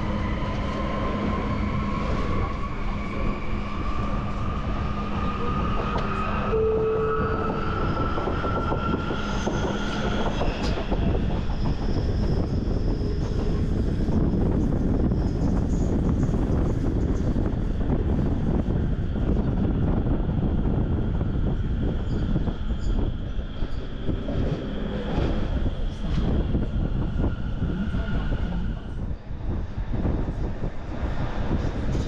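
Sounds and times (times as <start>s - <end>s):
rising train whine: 0.0s - 32.0s
train rumble: 0.0s - 32.0s
brief higher tone: 6.5s - 8.0s.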